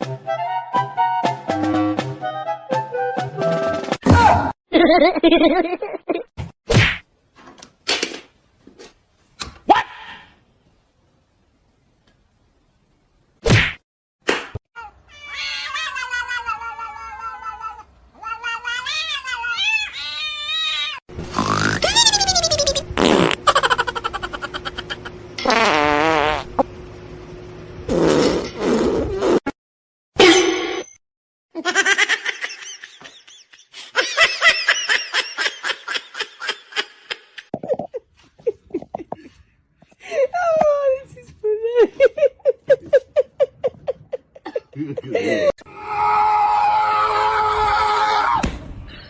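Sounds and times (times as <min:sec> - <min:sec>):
cat yowling: 0:14.8 - 0:21.0
person laughing: 0:21.4 - 0:25.2, 0:31.6 - 0:39.4, 0:41.6 - 0:45.6.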